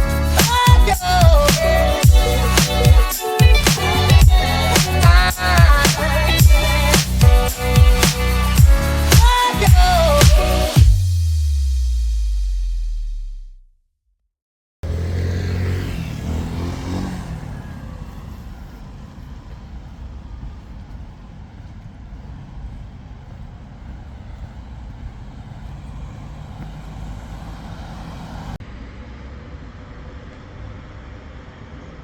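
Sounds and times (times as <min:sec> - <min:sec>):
steady traffic noise: 0:00.0 - 0:11.0, 0:14.8 - 0:32.0
vehicle engine passing close: 0:14.8 - 0:32.0.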